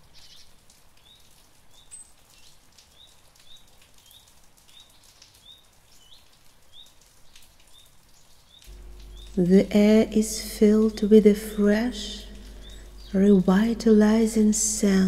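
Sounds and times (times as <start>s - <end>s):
soft rain falling: 0.0s - 15.0s
bird chirping: 8.6s - 15.0s.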